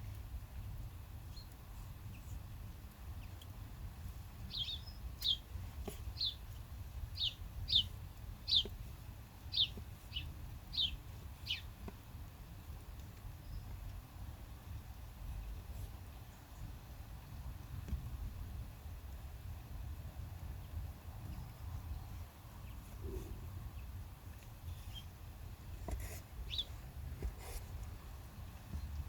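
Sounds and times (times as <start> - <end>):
bird chirping: 4.5 - 5.4, 6.2 - 6.4, 7.1 - 8.7, 9.5 - 11.7, 26.5 - 26.8.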